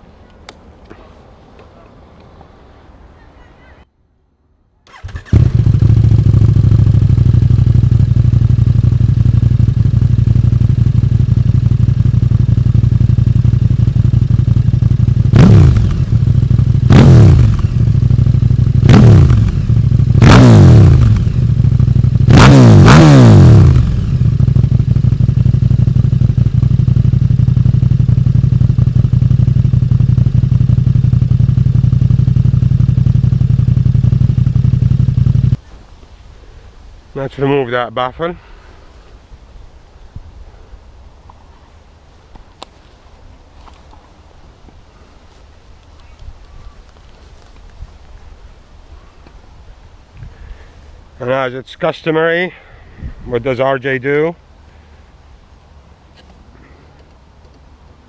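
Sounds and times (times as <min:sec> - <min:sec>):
motorcycle engine starting and idling: 0:04.9 - 0:35.7
motorcycle throttle blips: 0:04.9 - 0:35.7.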